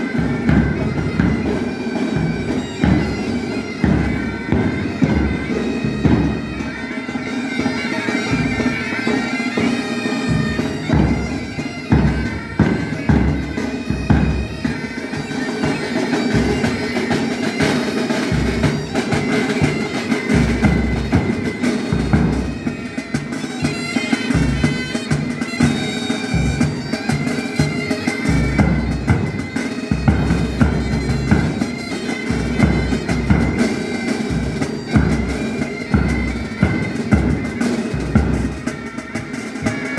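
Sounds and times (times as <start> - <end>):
snare and bass drums: 0.0 - 6.6, 16.3 - 39.9
bagpipes playing: 0.0 - 39.9.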